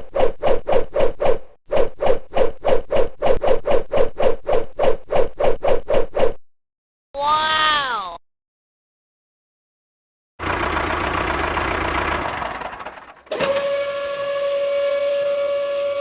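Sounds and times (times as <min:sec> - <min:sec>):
rough mechanical engine noise: 0:10.4 - 0:15.8.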